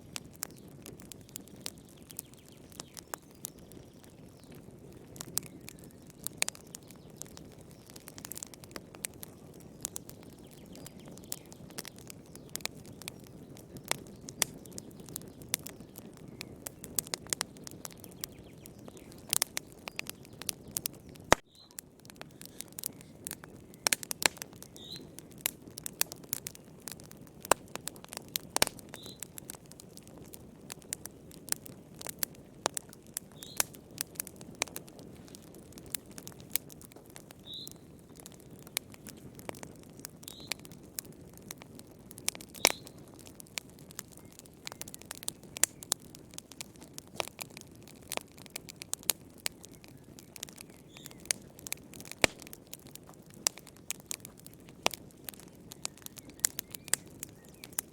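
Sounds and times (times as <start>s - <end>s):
wood fire crackling and popping: 0.0s - 57.9s.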